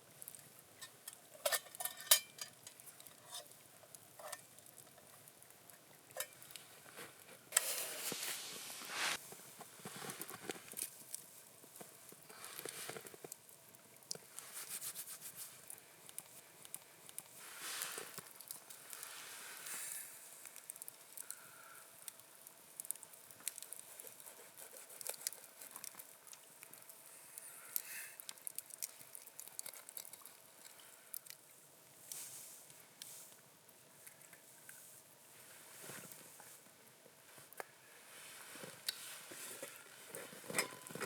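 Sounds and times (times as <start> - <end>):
small clicks and crackles: 0.2 - 8.3, 9.1 - 35.0, 35.7 - 41.0
scraping swishes: 7.7 - 9.2
handling rustles: 38.2 - 41.0.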